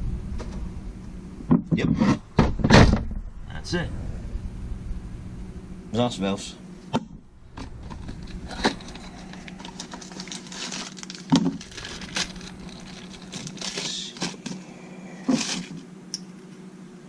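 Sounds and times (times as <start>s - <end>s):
steady low hum: 0.0s - 17.0s
plastic packaging crinkling: 7.6s - 15.8s.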